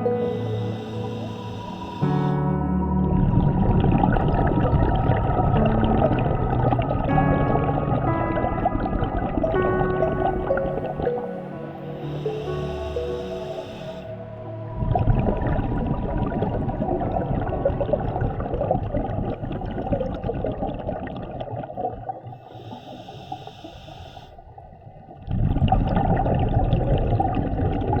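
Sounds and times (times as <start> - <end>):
hissing inhale through regulator: 0.0 - 2.6, 9.4 - 14.4, 22.3 - 24.6
exhaled bubbles gurgling underwater: 0.0 - 28.0.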